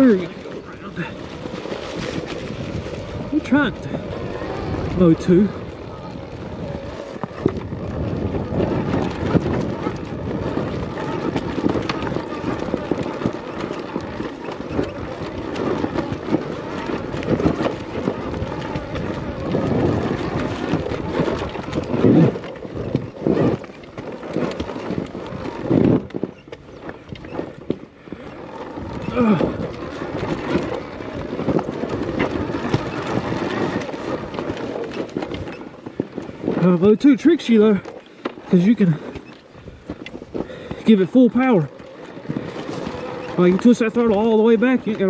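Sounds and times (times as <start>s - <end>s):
trail rumble: 0.0s - 45.0s
wind rushing over microphone: 0.0s - 45.0s.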